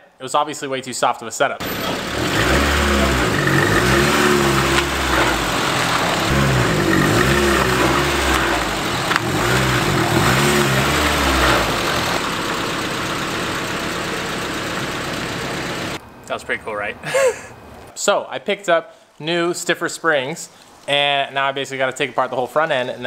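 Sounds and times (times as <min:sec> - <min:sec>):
car engine revving: 0:01.6 - 0:16.0.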